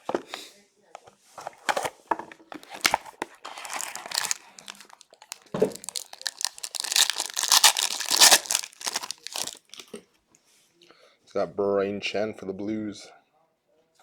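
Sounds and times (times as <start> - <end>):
card pack wrapper tearing: 2.6 - 9.8.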